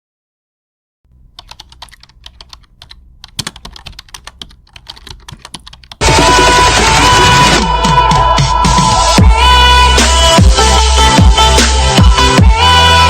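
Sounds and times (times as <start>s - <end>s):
loud music: 6.0s - 13.0s.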